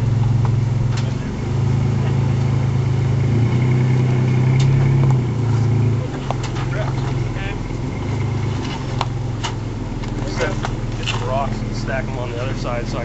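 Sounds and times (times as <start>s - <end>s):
pickup engine at low revs: 0.0s - 13.0s.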